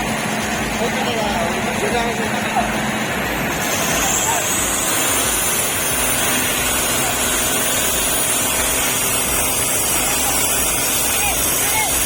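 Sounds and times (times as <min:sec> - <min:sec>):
diesel lorry engine running: 0:00.0 - 0:12.0
loud even hiss: 0:03.5 - 0:12.0.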